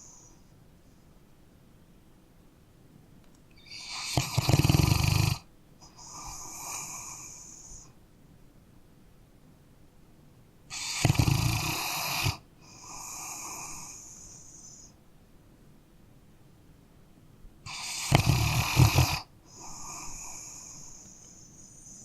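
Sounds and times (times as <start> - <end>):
dog snoring: 3.6 - 7.9, 10.7 - 14.9, 17.7 - 22.0.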